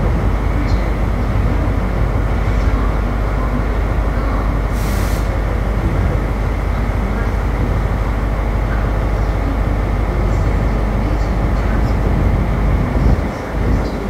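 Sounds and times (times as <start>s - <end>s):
train engine rumbling: 0.0s - 14.0s
air hiss: 4.7s - 5.6s.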